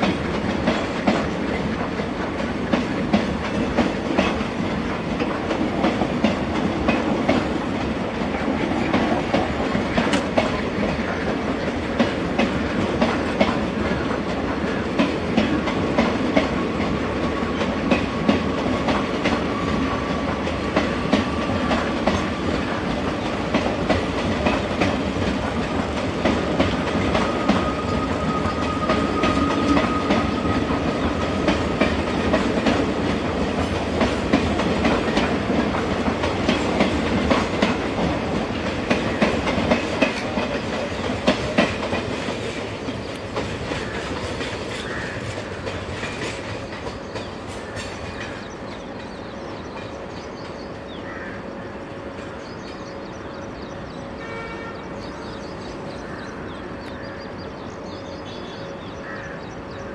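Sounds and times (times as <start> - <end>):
train wheels clattering over rail joints: 0.0 - 51.1.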